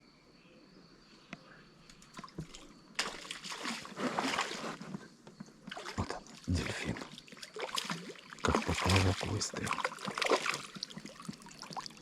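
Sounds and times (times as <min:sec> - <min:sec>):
fish splashing in water: 0:02.2 - 0:04.8, 0:05.7 - 0:12.0.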